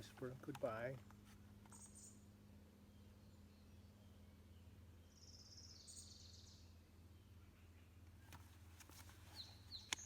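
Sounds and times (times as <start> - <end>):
low steady hum: 0.0 - 10.0
small bird trill: 1.7 - 2.3, 2.9 - 8.0, 9.3 - 10.0.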